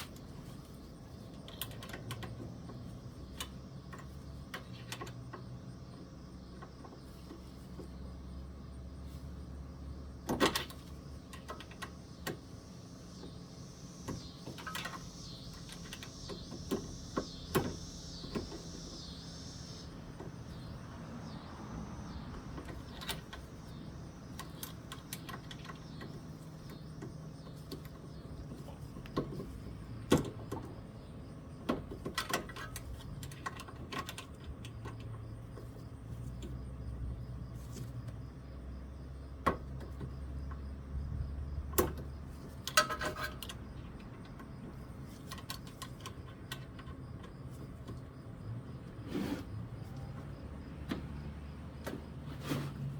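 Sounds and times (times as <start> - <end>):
steady low hum: 0.0 - 52.9
small tools and parts clicking: 1.2 - 5.6, 14.1 - 18.6, 22.4 - 30.7, 31.6 - 35.7, 41.7 - 48.1.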